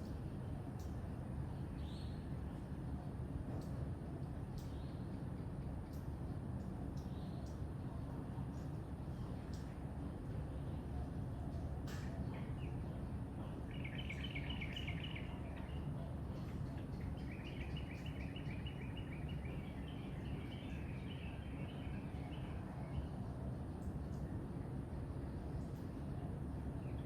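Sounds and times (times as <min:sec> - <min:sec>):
songbird trilling: 0:13.7 - 0:15.8, 0:17.1 - 0:22.5.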